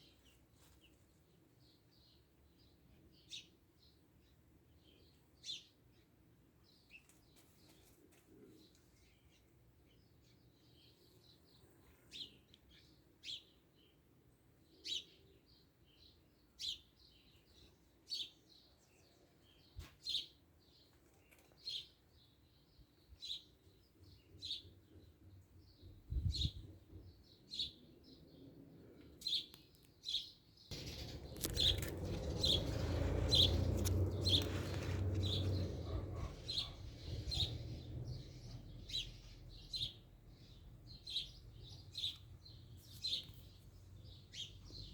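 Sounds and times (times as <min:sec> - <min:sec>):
bird chirping: 0:14.7 - 0:44.9
rushing noise: 0:30.8 - 0:36.6.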